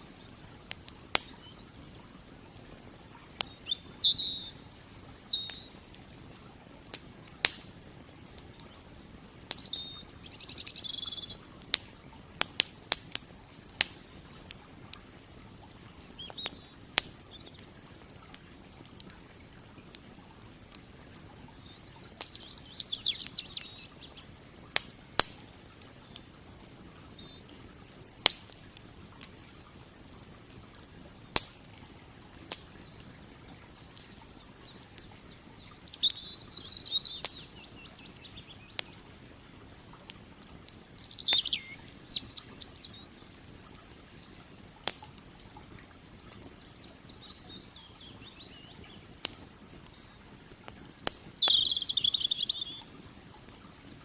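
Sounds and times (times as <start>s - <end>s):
campfire crackling and popping: 0.0s - 54.0s
creek water rushing: 0.0s - 54.0s
songbird trilling: 3.5s - 5.8s, 9.6s - 11.4s, 21.6s - 24.2s, 27.2s - 29.2s, 35.2s - 39.0s, 41.0s - 43.1s, 50.3s - 52.9s.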